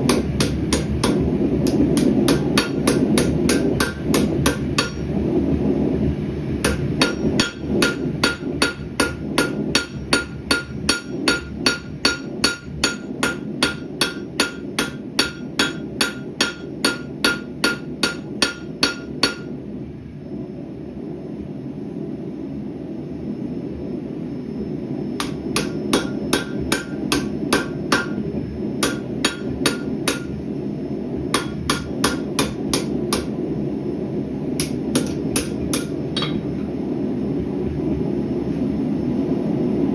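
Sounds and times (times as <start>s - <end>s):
gas forge rushing: 0.0s - 19.4s
hammer striking metal on anvil: 0.1s - 5.1s, 6.6s - 19.5s, 25.2s - 28.2s, 28.8s - 30.4s, 31.3s - 33.4s, 34.6s - 36.6s.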